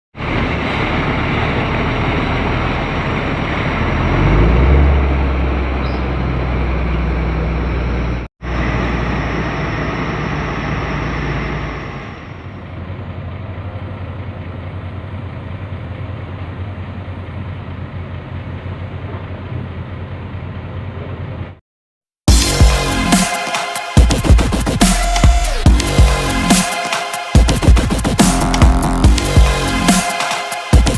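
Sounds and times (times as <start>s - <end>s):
diesel truck engine rumble: 0.2s - 21.6s.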